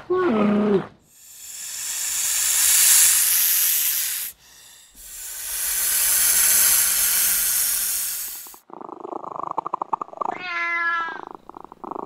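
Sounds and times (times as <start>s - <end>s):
snake hissing: 1.1s - 8.6s.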